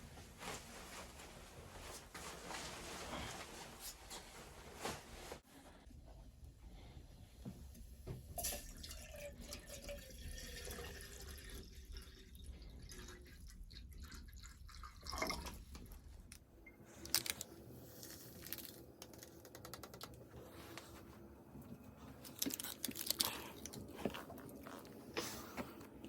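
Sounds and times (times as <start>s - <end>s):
water pouring and dripping: 8.4s - 16.0s.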